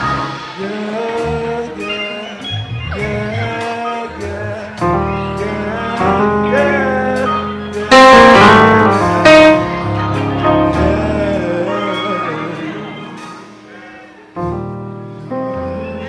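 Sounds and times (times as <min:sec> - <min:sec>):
guitar: 0:00.0 - 0:16.0
voices singing: 0:00.0 - 0:16.0
steady beat: 0:03.0 - 0:11.2.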